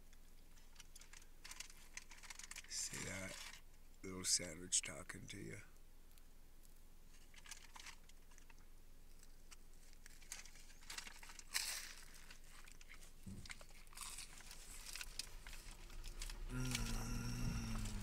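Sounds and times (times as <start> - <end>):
wrapper crinkle: 0.6 - 3.6, 7.1 - 18.0
man chewing a sandwich: 7.2 - 18.0
low engine rumble: 13.2 - 18.0.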